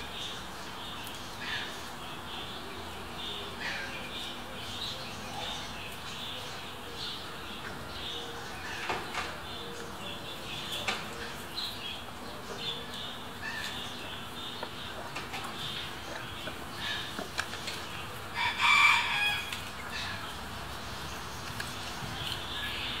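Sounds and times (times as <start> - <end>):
birds chirping: 0.0 - 23.0
steady outdoor hiss: 0.0 - 23.0.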